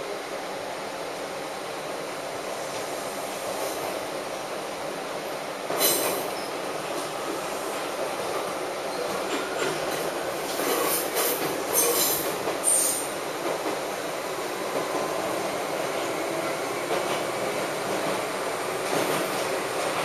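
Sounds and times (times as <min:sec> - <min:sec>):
train wheels rolling on rails: 0:01.4 - 0:20.0.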